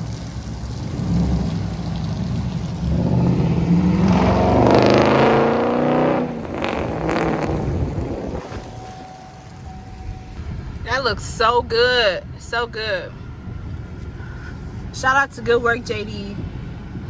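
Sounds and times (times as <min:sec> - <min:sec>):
car engine revving: 0:00.0 - 0:10.4.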